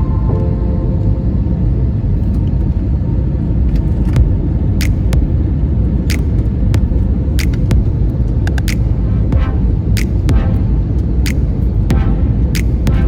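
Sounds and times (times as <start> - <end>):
sharp clicks: 7.4 - 9.0, 12.5 - 12.9.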